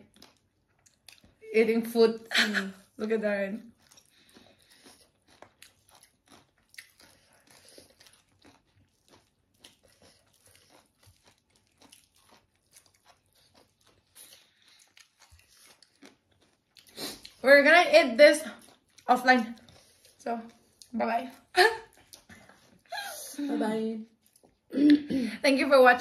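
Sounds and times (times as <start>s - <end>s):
crunchy chewing: 3.7s - 17.4s, 18.4s - 22.9s.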